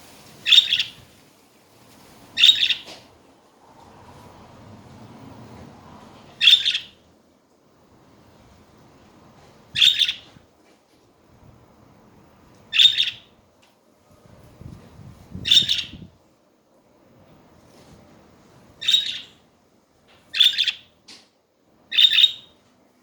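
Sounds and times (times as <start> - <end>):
budgerigar chirping: 0.5 - 1.0, 2.4 - 2.9, 6.4 - 7.0, 9.8 - 10.3, 12.7 - 13.3, 15.4 - 16.0, 18.8 - 19.4, 20.3 - 20.9, 21.9 - 22.6.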